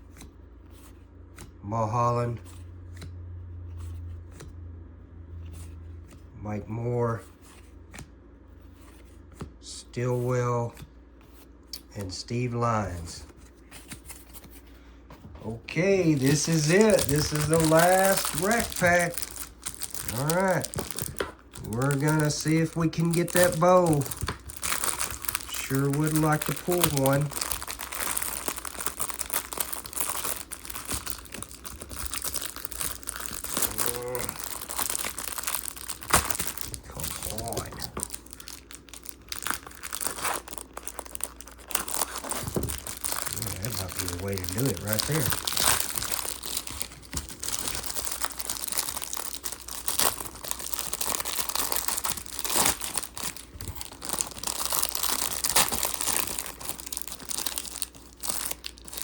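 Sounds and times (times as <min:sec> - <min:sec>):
plastic wrapper crinkling and tearing: 0:15.5 - 0:59.0.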